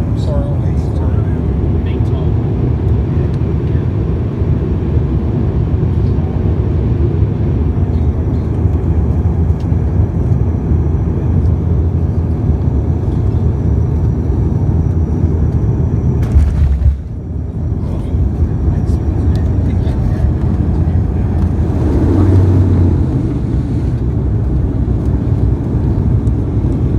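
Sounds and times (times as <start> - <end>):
airliner cabin engine rumble: 0.0 - 26.9.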